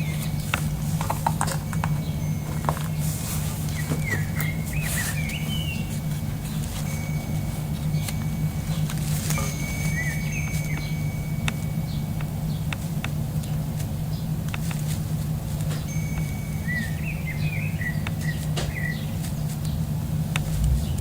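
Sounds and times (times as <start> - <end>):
birds chirping: 0.0 - 21.0
low outdoor rumble: 0.0 - 21.0
light clicks and taps: 10.7 - 16.3.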